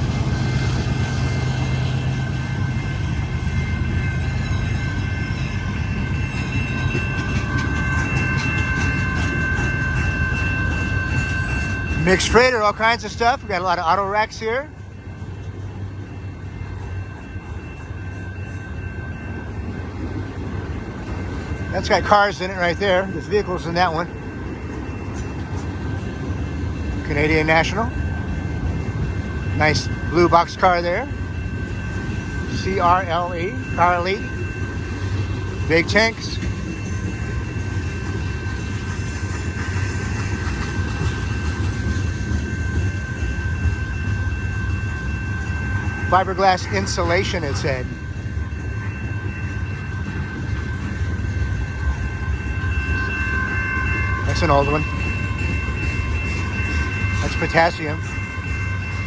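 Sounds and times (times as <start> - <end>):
freight cars rumbling on rails: 0.0 - 59.0
thin high tone: 21.1 - 59.0.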